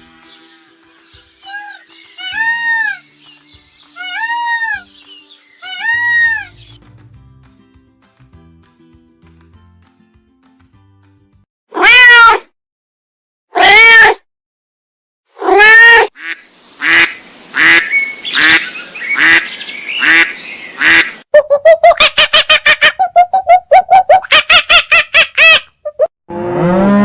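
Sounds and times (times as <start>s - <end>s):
animal calls: 5.6s - 6.8s.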